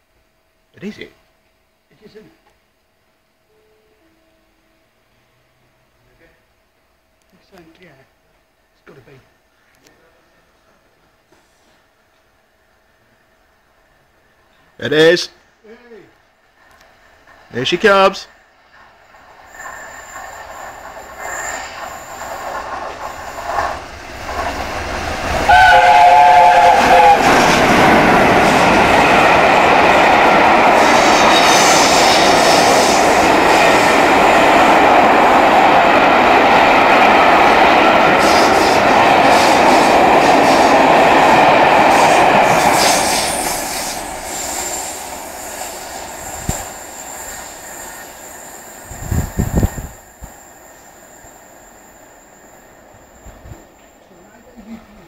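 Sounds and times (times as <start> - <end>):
steam locomotive whistle: 3.5 - 4.8, 25.4 - 28.6
train rumble and wheel clatter: 16.0 - 55.0.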